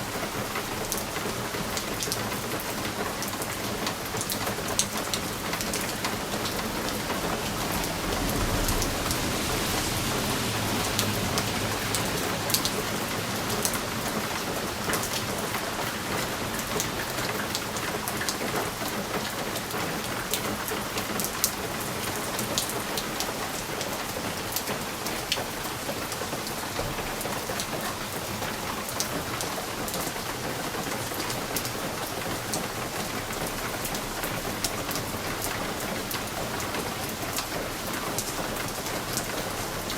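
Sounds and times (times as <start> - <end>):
rain pattering on window: 0.0 - 39.9
low rumble: 6.6 - 12.3.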